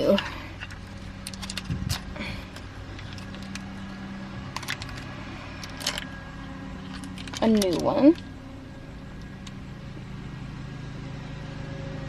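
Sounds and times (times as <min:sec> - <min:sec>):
small objects clicking and rustling: 0:00.0 - 0:08.4
steady low hum: 0:00.0 - 0:12.0.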